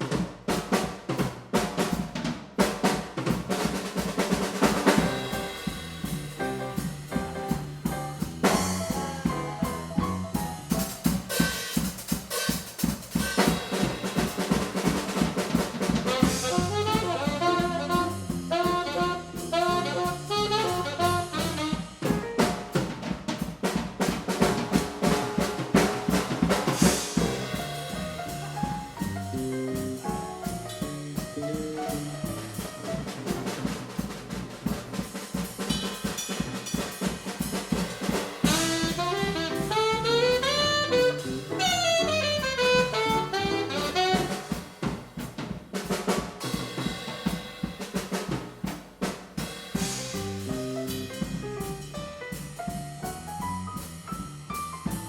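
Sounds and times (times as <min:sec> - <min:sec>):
drum kit playing: 0:00.0 - 0:55.0
small jazz group playing: 0:00.0 - 0:55.0.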